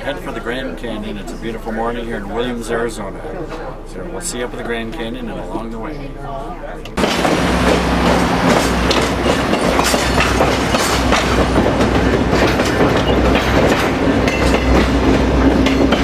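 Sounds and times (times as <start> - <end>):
wheels clicking and clanking: 6.9 - 16.0
train rumbling on rails: 7.0 - 16.0.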